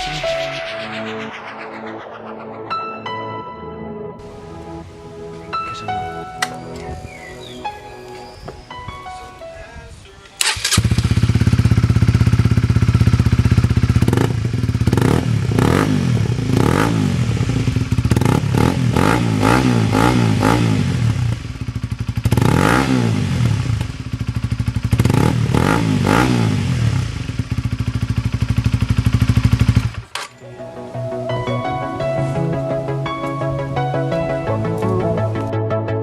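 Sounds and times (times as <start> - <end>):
motorcycle engine idling and revving: 10.4 - 30.3.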